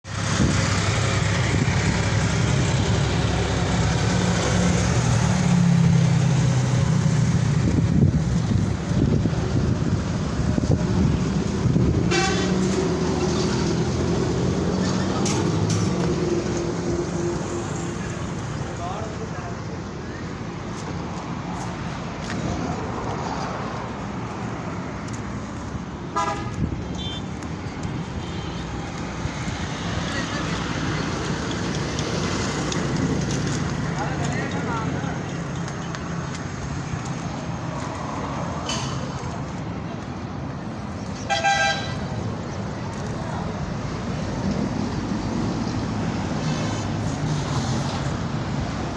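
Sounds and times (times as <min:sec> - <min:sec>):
road traffic noise: 0:00.0 - 0:48.9
vehicle horn toot: 0:12.1 - 0:12.6, 0:26.2 - 0:27.3, 0:41.3 - 0:42.0.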